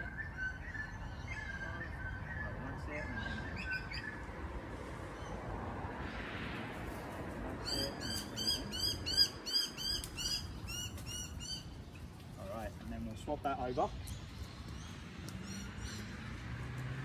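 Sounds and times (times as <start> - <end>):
bird chirping: 0.0 - 4.3, 7.6 - 16.4.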